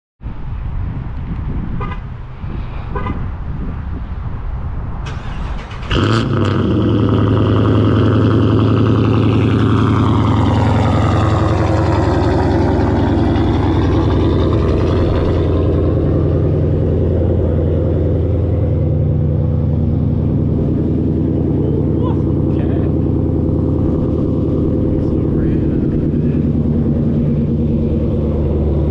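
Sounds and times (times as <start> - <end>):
car engine cold start: 5.0 - 6.9.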